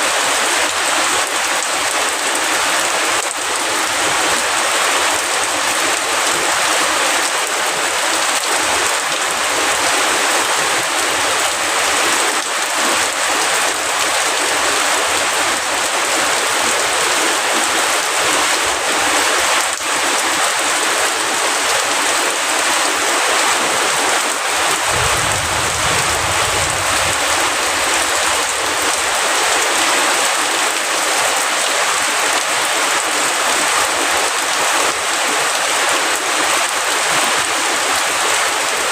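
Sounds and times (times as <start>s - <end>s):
heavy rain falling: 0.0s - 38.9s
low rumble: 24.8s - 29.2s.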